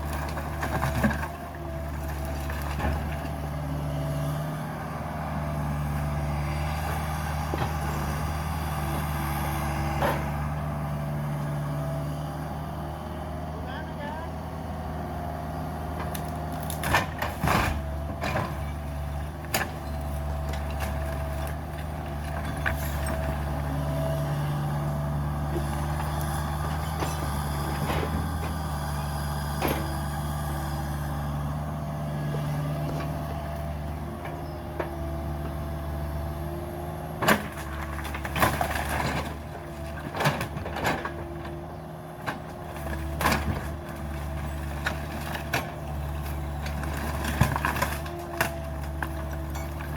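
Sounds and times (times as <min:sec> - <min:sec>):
excavator diesel engine running: 0:00.0 - 0:49.9
sharp cracks and knocks: 0:16.0 - 0:18.6.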